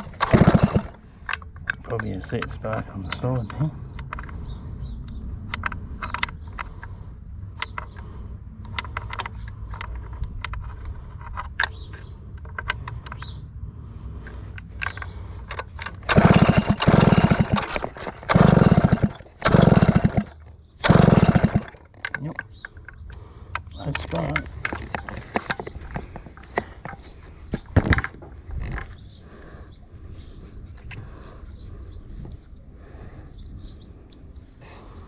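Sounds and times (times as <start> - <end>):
chainsaw recoil starter pulls: 0.0 - 4.3, 14.8 - 22.7.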